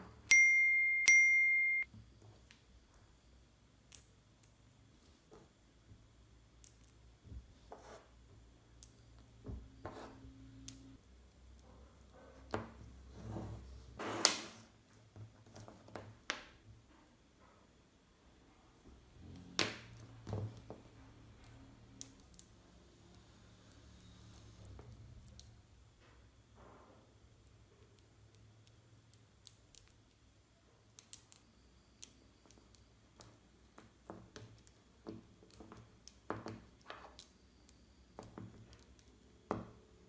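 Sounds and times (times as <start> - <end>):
magnetic balls clicking: 30.9 - 39.3.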